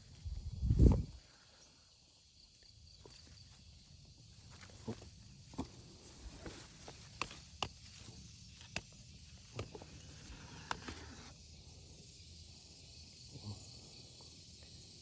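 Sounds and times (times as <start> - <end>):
sharp snaps and crackles: 6.8 - 9.8.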